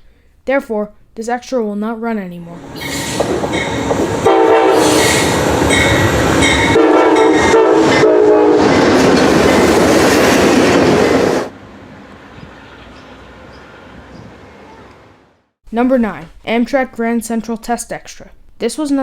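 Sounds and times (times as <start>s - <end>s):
train rumble: 2.6s - 15.2s
locomotive horn blasts: 3.6s - 8.8s.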